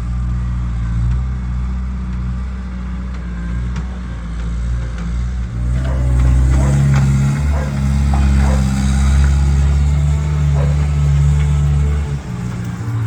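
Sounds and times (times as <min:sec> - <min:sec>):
farm machine engine humming: 0:05.4 - 0:13.0.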